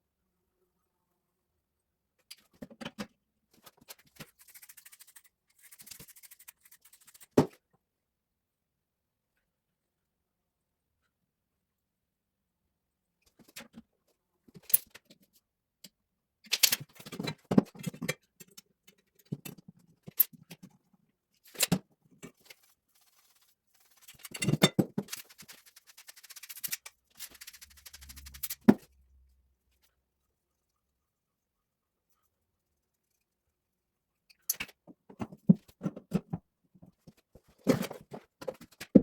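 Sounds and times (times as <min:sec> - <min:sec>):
pipe and hand tools handled: 0:21.4 - 0:28.9, 0:34.3 - 0:39.0.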